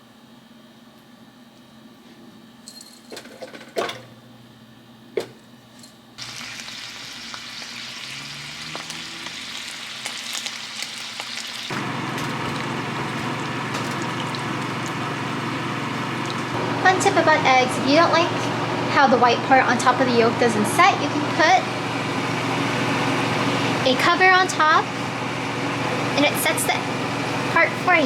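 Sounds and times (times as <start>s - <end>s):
bacon sizzling in a frying pan: 6.2s - 15.1s.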